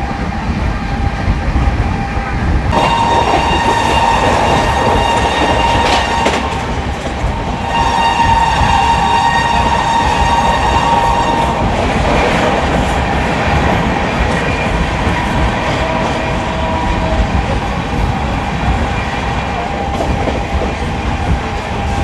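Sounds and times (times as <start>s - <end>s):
train wheels running over track: 0.0s - 22.0s
train horn: 2.7s - 6.9s, 7.6s - 11.8s.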